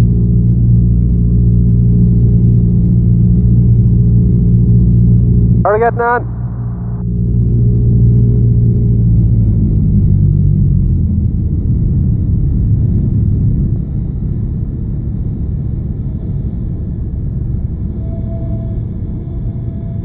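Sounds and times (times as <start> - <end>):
light aircraft engine drone: 0.0 - 20.0.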